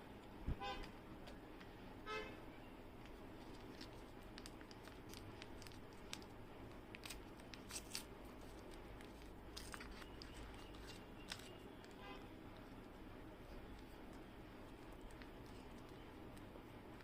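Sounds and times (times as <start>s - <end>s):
plastic bag crinkling and tearing: 3.4s - 12.0s.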